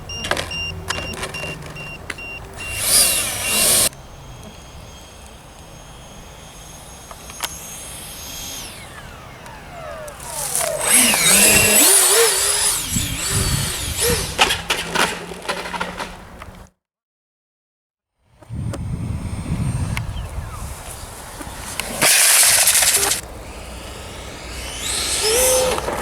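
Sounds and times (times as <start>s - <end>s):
model jet engine whine: 0.0s - 16.6s, 18.4s - 26.0s.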